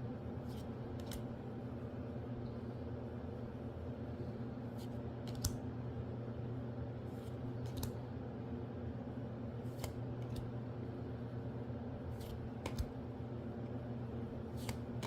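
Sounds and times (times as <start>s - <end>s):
steady low hum: 0.0s - 15.0s
cards clicking and snapping: 1.0s - 1.3s, 5.2s - 5.6s, 7.6s - 8.0s, 9.7s - 10.5s, 12.2s - 13.0s, 14.6s - 15.0s.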